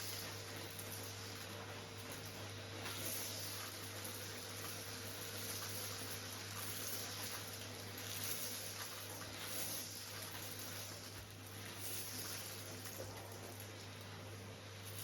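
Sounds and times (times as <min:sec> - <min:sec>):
vacuum cleaner sucking up stones: 0:00.0 - 0:15.0.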